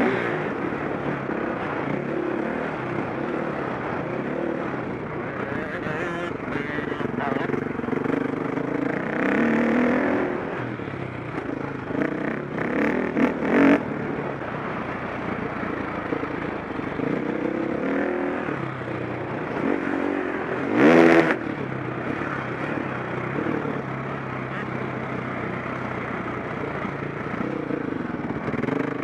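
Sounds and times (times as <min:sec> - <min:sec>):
motocross engine revving: 0:00.0 - 0:10.6, 0:19.4 - 0:25.1.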